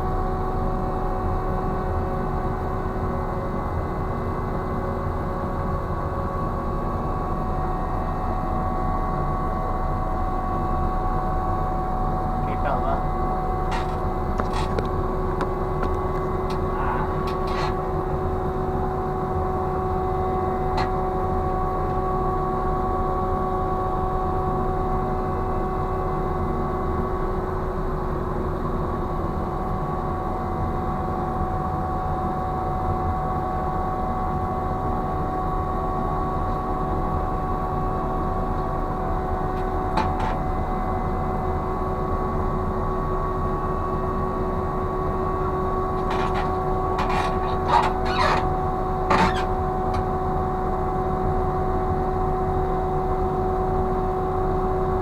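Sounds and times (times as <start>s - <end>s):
ship machinery humming: 6.8s - 24.0s, 35.8s - 52.9s.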